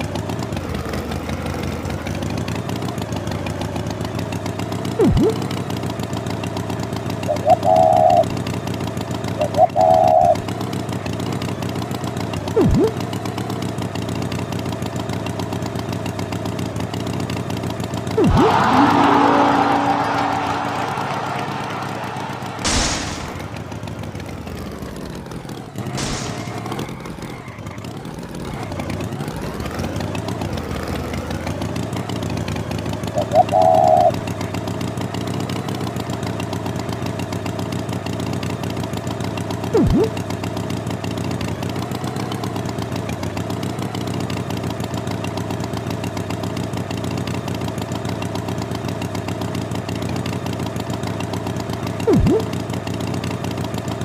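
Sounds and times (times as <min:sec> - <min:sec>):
engine idling: 0:00.0 - 0:54.0
warbling tone: 0:05.0 - 0:05.6, 0:12.6 - 0:13.0, 0:18.2 - 0:24.3, 0:39.8 - 0:40.2, 0:52.1 - 0:52.6
brief sharp sound: 0:18.2 - 0:24.3, 0:26.0 - 0:26.9.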